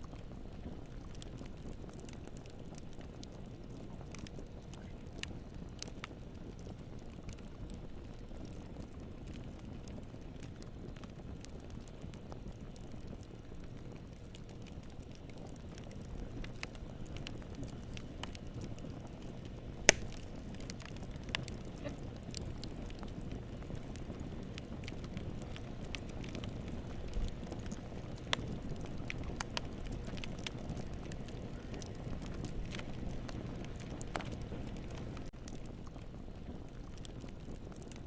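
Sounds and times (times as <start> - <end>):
fire crackling in a fireplace: 0.0 - 38.0.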